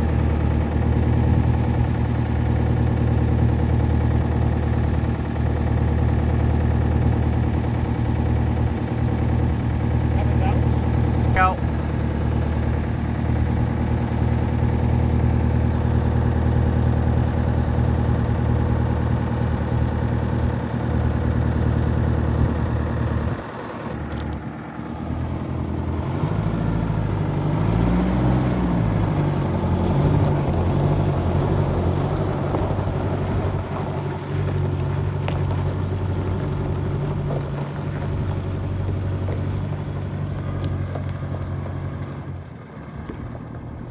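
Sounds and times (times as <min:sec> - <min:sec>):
truck engine idling: 0:00.0 - 0:43.9.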